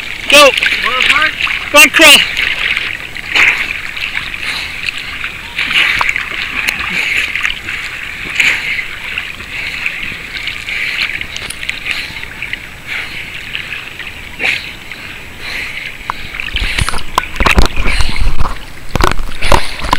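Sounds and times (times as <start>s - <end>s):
loud splashes: 0.0s - 12.2s
water sloshing against camera: 0.0s - 19.9s.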